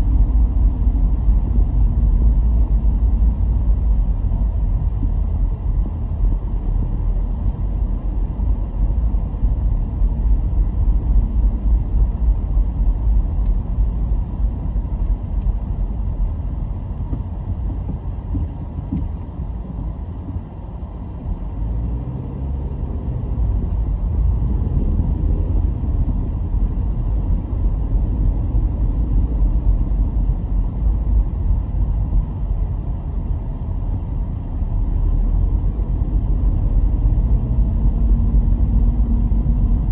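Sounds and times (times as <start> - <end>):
car tyres and engine rumbling: 0.0 - 39.9.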